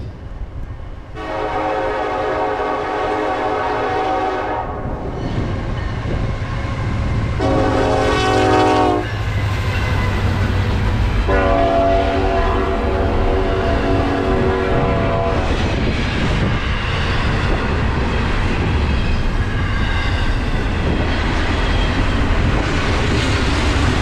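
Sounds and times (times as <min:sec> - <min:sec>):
passing train rumble: 0:00.0 - 0:24.0
locomotive horn blasts: 0:01.2 - 0:04.9, 0:07.4 - 0:09.2, 0:11.3 - 0:15.5.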